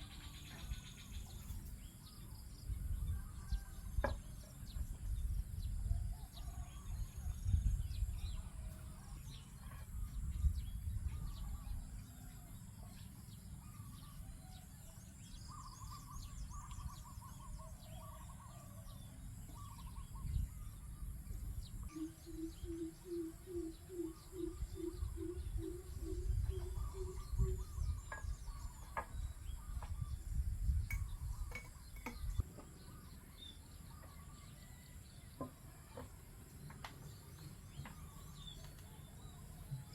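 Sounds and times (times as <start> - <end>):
birds chirping and trilling: 0.0 - 39.9
low hooting bird call: 21.9 - 28.6.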